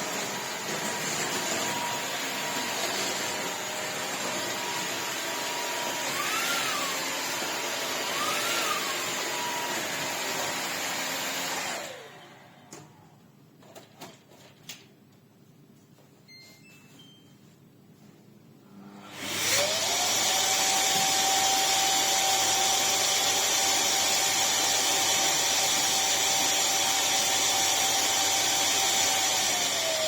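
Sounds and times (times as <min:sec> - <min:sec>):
cordless vacuum running: 0:00.0 - 0:12.6, 0:18.8 - 0:30.0.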